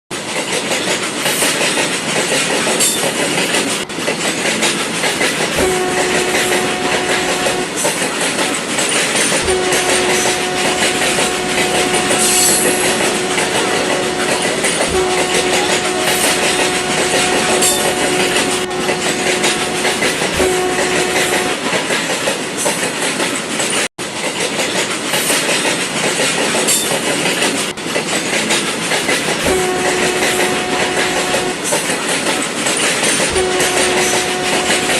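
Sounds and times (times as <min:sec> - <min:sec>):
toy train running whir: 0:00.2 - 0:34.9
toy train horn blasts: 0:05.5 - 0:08.0, 0:09.2 - 0:21.8, 0:29.4 - 0:32.1, 0:33.0 - 0:34.9.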